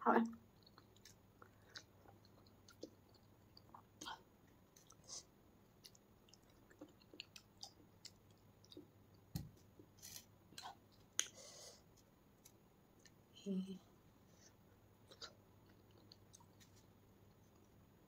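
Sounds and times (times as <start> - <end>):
wet chewing mouth sounds: 0.5 - 5.2, 5.8 - 8.9.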